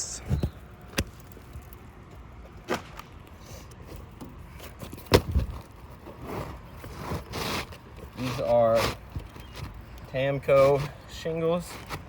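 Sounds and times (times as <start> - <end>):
scraping and rustling on roof: 3.4 - 12.0.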